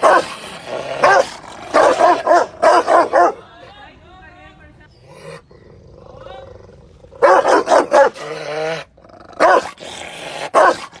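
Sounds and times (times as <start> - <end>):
dog growling: 0.0 - 3.2, 5.0 - 11.0
dog barking loudly: 0.0 - 3.5, 7.2 - 8.3, 9.4 - 9.8, 10.4 - 11.0.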